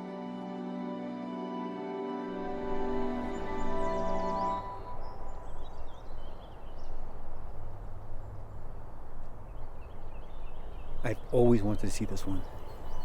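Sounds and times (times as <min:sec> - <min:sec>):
soft background music: 0:00.0 - 0:07.7
faint birds chirping: 0:02.4 - 0:13.0.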